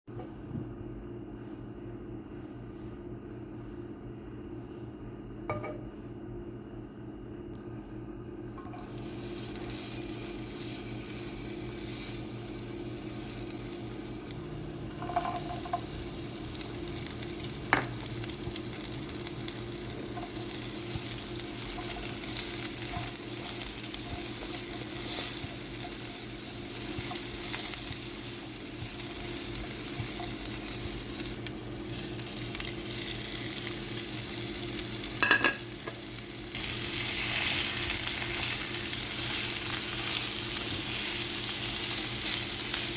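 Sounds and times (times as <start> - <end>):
food sizzling in frying pan: 8.6 - 42.9.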